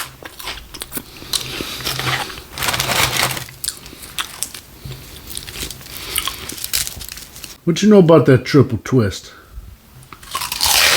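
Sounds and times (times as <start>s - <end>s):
crunching and chewing snack: 0.0s - 7.6s, 10.2s - 10.9s.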